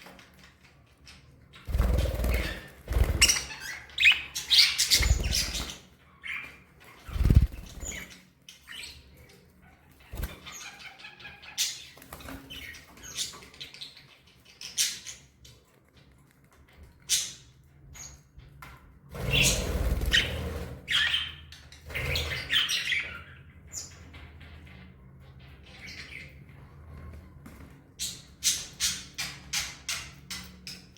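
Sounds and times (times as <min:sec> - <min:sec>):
budgerigars chirping: 0:01.6 - 0:08.1
wings flapping: 0:01.7 - 0:03.7, 0:04.8 - 0:05.8, 0:07.0 - 0:08.1, 0:10.1 - 0:10.4, 0:19.2 - 0:20.9.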